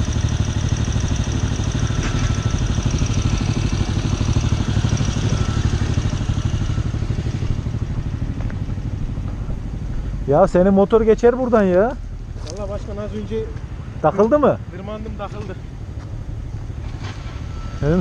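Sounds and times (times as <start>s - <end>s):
small motorcycle engine running: 0.0s - 10.8s.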